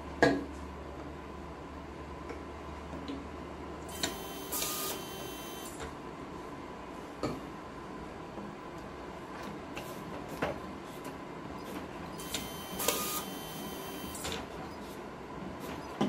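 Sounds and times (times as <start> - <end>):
label printer whirring: 3.9 - 5.8, 11.6 - 14.7.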